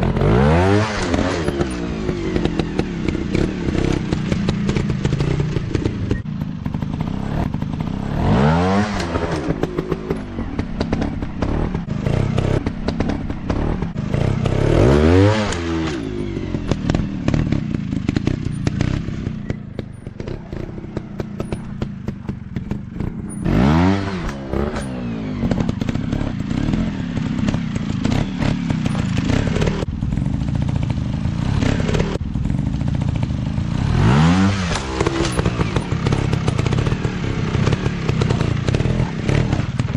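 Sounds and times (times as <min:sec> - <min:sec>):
dirt bike engine revving: 0:00.0 - 0:39.9
clattering and thuds: 0:15.5 - 0:30.9.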